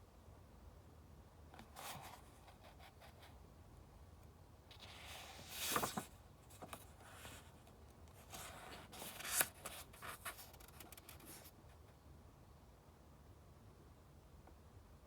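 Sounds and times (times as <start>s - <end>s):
book pages rustling: 4.7s - 11.5s.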